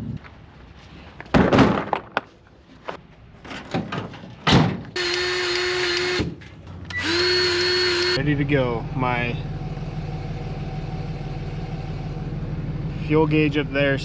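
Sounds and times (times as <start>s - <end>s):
knocks and thuds: 1.3s - 2.2s
mechanical whir: 5.0s - 8.2s.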